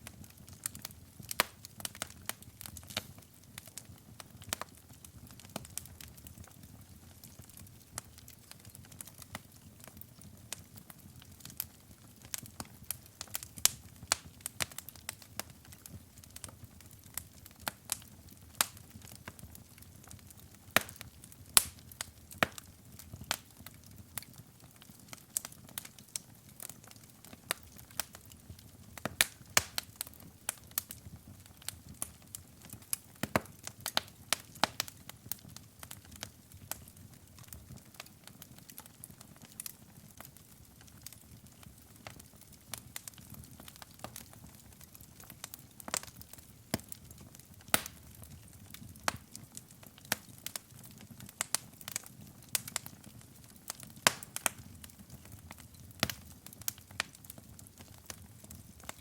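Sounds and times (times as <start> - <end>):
low rumble of burning: 0.0 - 59.0
wood fire crackling and popping: 0.0 - 59.0.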